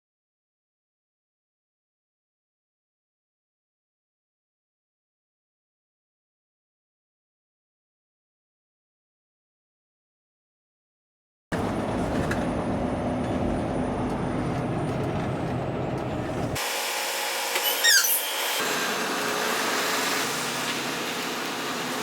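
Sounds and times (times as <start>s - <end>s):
truck engine and road rumble: 11.5s - 16.8s
high chirping squeaks: 17.6s - 18.6s.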